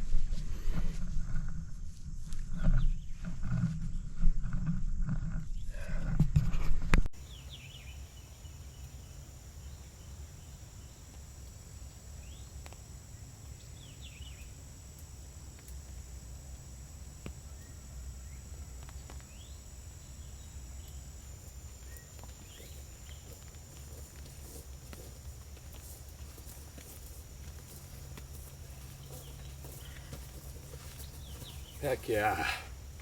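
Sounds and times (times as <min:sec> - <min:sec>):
high insect drone: 0:07.1 - 0:33.0
bird chirps: 0:07.2 - 0:24.7, 0:27.7 - 0:32.0.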